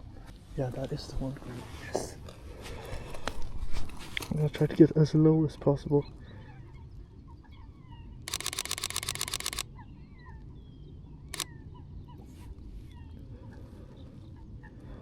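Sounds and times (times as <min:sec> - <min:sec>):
camera shutter clicks: 0:08.3 - 0:09.6, 0:11.3 - 0:11.5.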